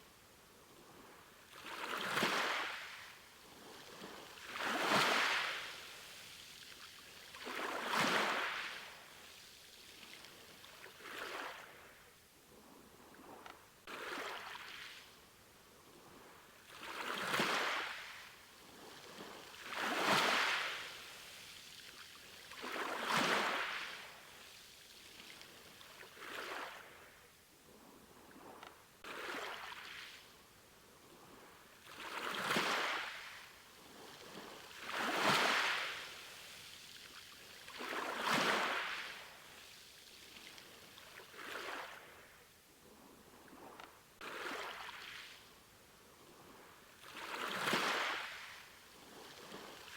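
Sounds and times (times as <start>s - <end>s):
small waves washing onto shore: 1.2s - 12.0s, 16.2s - 27.2s, 31.3s - 42.4s, 46.4s - 49.9s.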